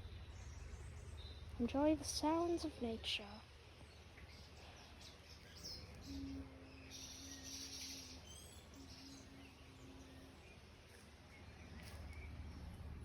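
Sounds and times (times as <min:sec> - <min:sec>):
faint bird chirps: 0:03.8 - 0:12.7.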